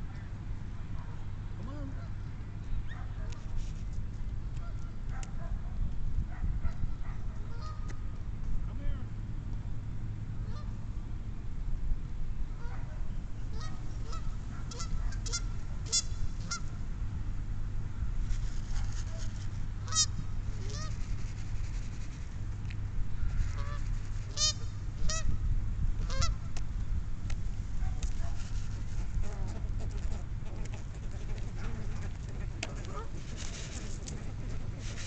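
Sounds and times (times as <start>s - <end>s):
steady low rumble: 0.0s - 35.0s
waterfowl calling: 7.5s - 8.0s, 10.5s - 10.7s, 13.5s - 16.8s, 19.8s - 21.1s, 23.2s - 25.3s, 26.0s - 26.4s, 28.9s - 35.0s.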